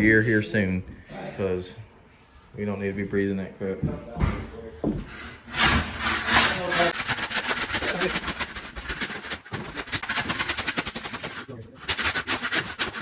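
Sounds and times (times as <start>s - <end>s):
saw cutting through wood: 5.2s - 13.0s.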